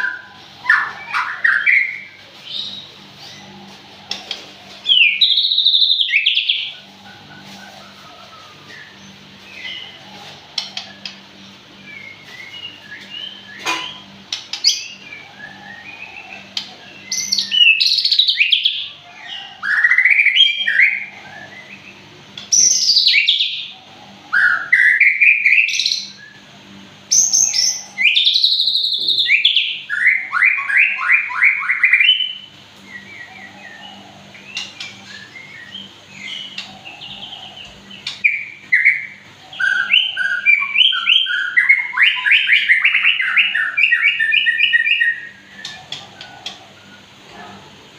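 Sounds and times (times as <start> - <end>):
songbird singing whistled song: 4.8 - 6.7, 11.8 - 18.9, 19.7 - 23.7, 27.1 - 33.8, 34.4 - 45.9.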